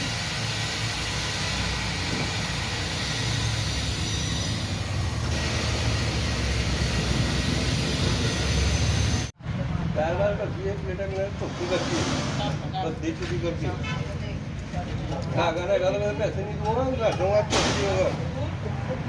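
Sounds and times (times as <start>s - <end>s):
motor vehicle rumble: 0.0s - 19.0s.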